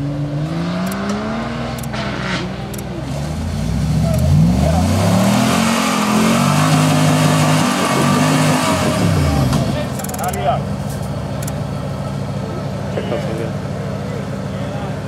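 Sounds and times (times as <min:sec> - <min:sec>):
engine revving: 0:00.0 - 0:10.6
sharp clicks: 0:00.8 - 0:02.0, 0:09.9 - 0:10.5, 0:11.3 - 0:11.6.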